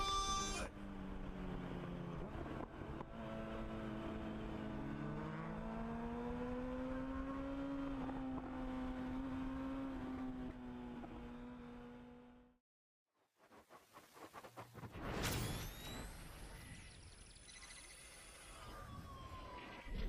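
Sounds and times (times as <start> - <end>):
motorcycle engine at speed: 0.7 - 12.6.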